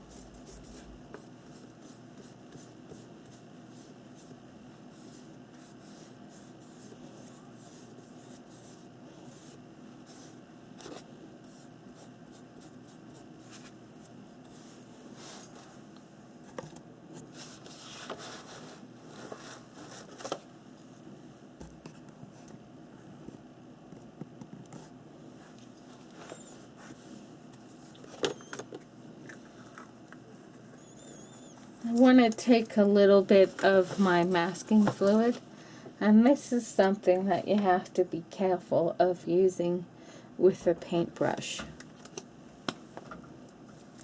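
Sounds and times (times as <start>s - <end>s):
paintbrush scratching on paper: 0.1s - 13.8s.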